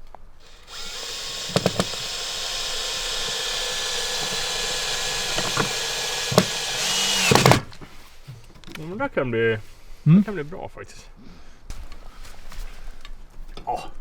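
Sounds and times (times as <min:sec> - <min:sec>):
power drill running: 0:00.4 - 0:07.8.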